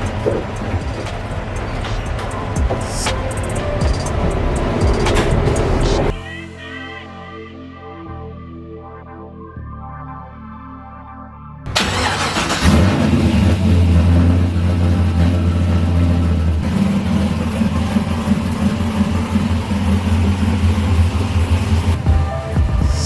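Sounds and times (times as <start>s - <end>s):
car engine starting and running: 0.0s - 6.2s, 11.7s - 23.0s.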